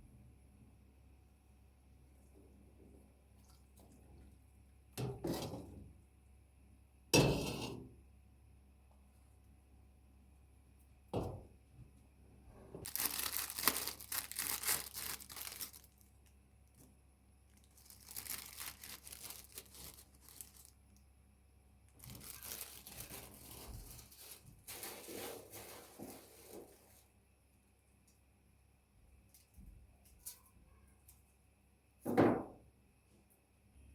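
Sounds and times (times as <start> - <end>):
packaging crinkling and tearing: 12.8 - 16.9, 17.5 - 21.0, 21.9 - 27.0
knock: 32.1 - 32.6.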